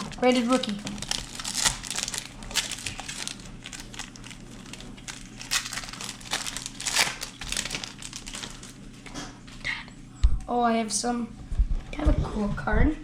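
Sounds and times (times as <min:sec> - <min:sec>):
wrapper crinkling and tearing: 0:00.0 - 0:08.8.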